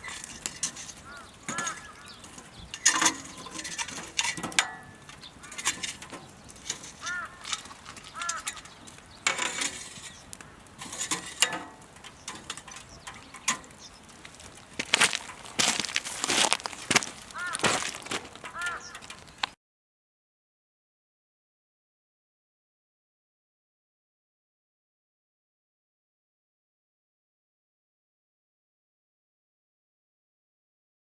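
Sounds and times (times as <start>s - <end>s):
firewood crackling and popping: 0.0s - 19.6s.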